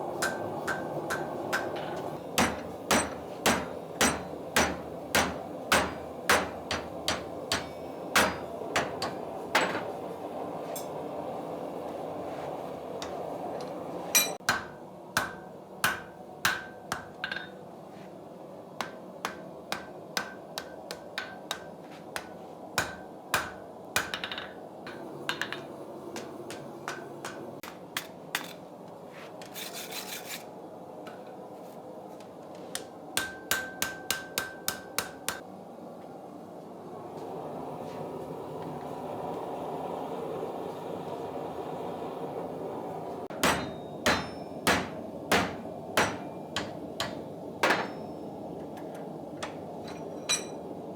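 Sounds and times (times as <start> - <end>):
hammer striking iron on anvil: 0.2 - 10.0, 14.2 - 17.6, 18.8 - 28.5, 32.8 - 35.4, 43.3 - 48.3.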